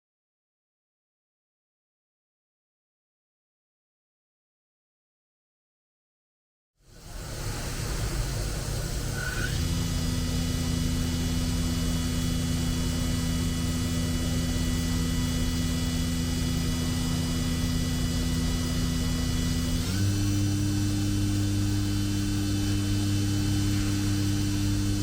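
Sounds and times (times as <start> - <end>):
milling machine hum and whine: 6.8 - 25.0.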